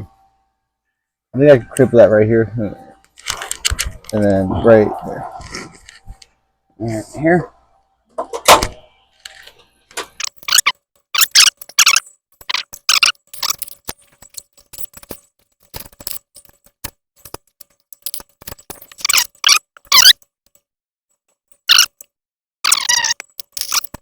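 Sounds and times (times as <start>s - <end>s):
sharp metallic clicks: 10.2s - 20.6s, 21.2s - 24.0s.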